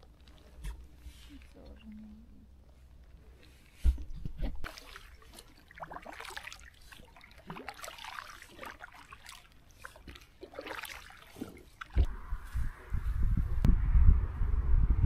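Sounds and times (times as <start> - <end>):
river water trickling and splashing: 4.4 - 12.1.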